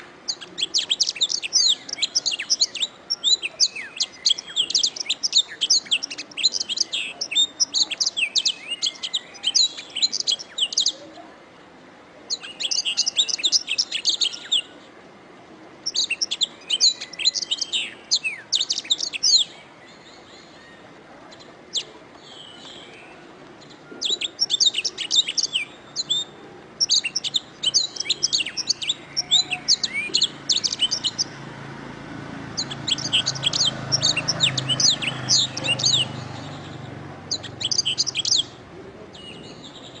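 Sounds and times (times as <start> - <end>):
canary singing: 0.0 - 11.1, 12.3 - 14.8, 15.8 - 40.0.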